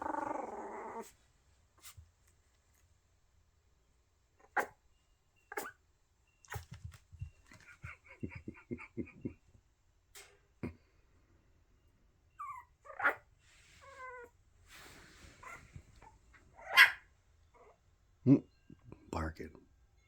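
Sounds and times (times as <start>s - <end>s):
puppy whining: 0.0s - 1.2s, 5.5s - 5.8s, 6.5s - 8.4s, 12.3s - 14.4s, 15.4s - 17.8s
sharp puppy bark: 16.7s - 17.0s.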